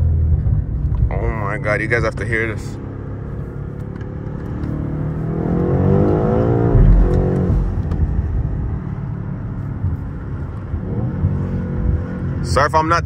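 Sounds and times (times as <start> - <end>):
car engine accelerating hard: 0.0 - 13.0
heavy low thump: 5.6 - 8.8.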